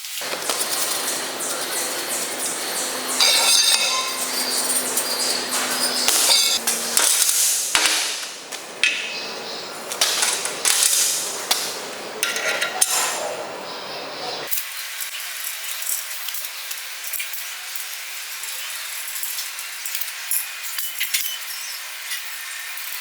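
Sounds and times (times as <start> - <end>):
hand tool knocking metal: 0.2 - 8.0
tool scraping metal: 0.2 - 8.2.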